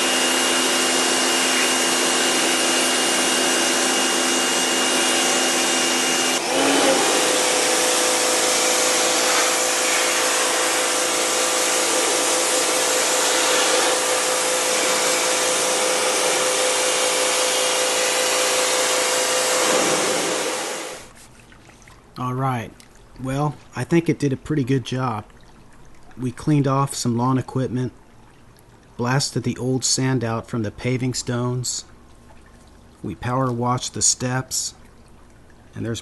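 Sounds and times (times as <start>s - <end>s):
pressure washer motor whine: 0.0s - 21.1s
hiss of water spray: 9.1s - 14.1s, 19.2s - 21.1s.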